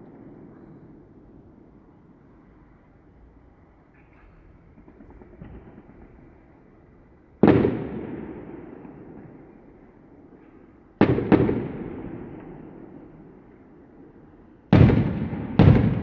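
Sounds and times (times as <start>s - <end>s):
firework shells booming: 7.4s - 13.3s, 14.7s - 16.0s.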